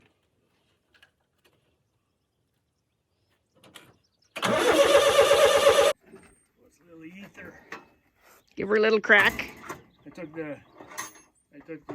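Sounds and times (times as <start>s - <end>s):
tractor engine cranking: 4.4s - 6.0s.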